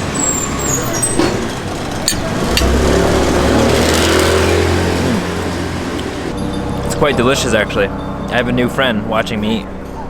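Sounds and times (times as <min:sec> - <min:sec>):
vehicle engine passing by: 0:01.6 - 0:06.4.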